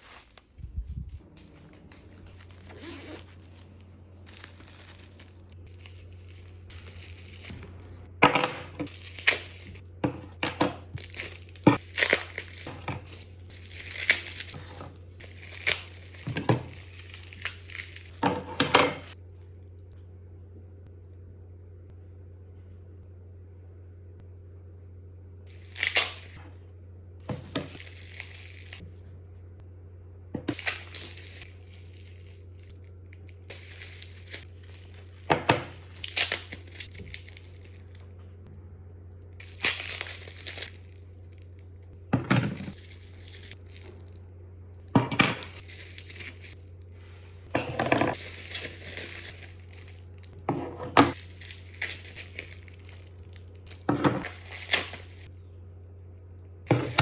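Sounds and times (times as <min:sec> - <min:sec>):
packaging crinkling and tearing: 0:00.0 - 0:00.6, 0:01.2 - 0:19.2, 0:25.5 - 0:26.4, 0:27.3 - 0:28.8, 0:30.5 - 0:38.3, 0:39.4 - 0:44.2, 0:45.4 - 0:50.4, 0:51.0 - 0:55.3
steady low hum: 0:00.0 - 0:57.0.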